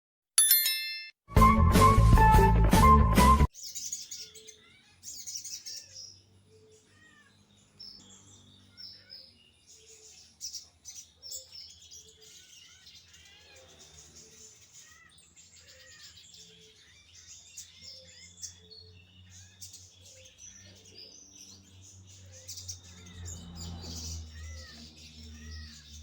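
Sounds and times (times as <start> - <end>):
loud burst of music: 1.3 - 3.5.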